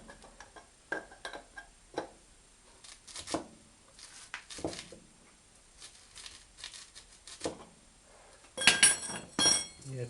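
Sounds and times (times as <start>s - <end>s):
metal tools knocking: 8.6s - 9.8s.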